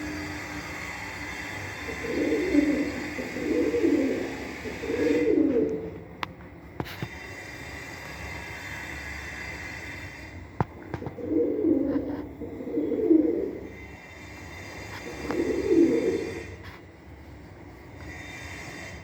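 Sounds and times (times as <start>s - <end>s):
pigeons cooing: 0.0s - 6.3s, 10.8s - 16.9s.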